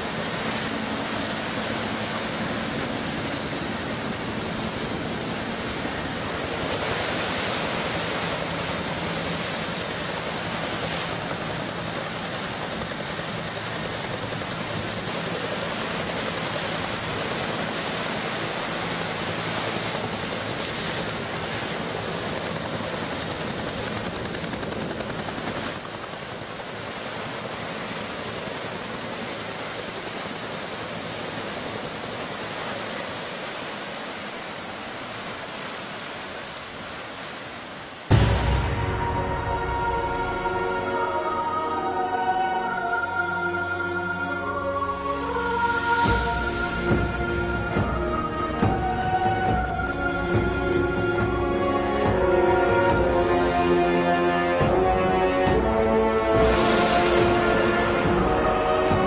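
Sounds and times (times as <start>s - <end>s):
steady rushing noise: 0.0s - 59.0s.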